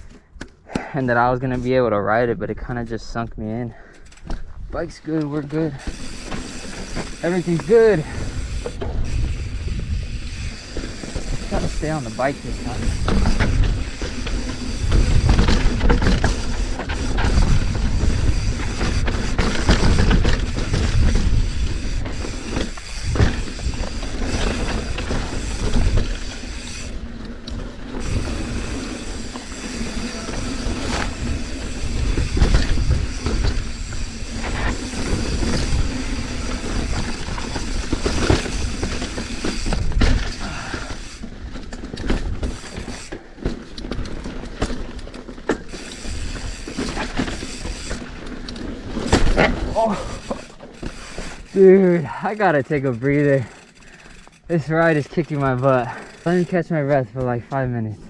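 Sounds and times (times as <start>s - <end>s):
bike chain and frame rattling: 3.7s - 58.0s
wind rumble on microphone: 8.0s - 11.9s, 12.5s - 27.0s.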